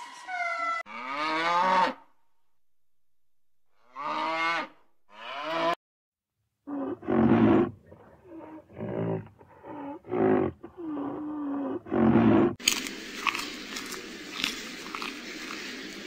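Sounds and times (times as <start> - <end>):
cow mooing: 0.9 - 2.1, 3.8 - 5.8.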